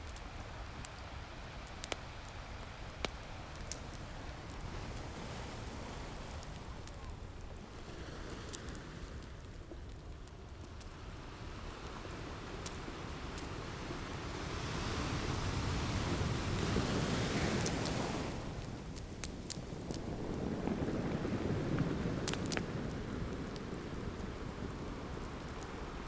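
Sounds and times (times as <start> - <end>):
wood fire crackling: 0.0 - 26.0
ocean surf rushing: 14.2 - 23.2.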